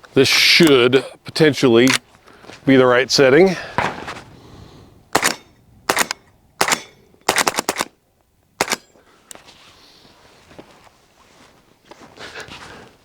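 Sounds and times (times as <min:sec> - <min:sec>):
pistol shots: 0:03.8 - 0:04.4, 0:05.1 - 0:08.0, 0:08.6 - 0:08.9.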